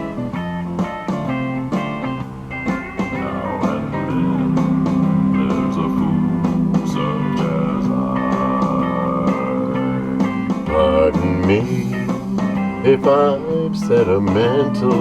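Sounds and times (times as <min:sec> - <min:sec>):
guitars over steady beat: 0:00.0 - 0:15.0.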